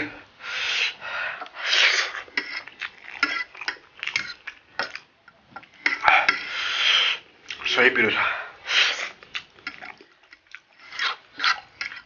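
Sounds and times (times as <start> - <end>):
noodle slurps: 1.6 - 4.5, 8.8 - 12.0
wet chewing with smacks: 2.2 - 6.0, 9.0 - 12.0.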